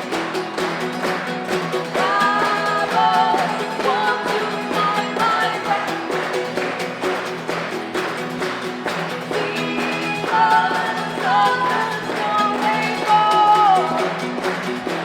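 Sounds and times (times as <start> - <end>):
guitars strummed: 0.0 - 15.0
person singing: 1.6 - 6.8, 9.2 - 15.0.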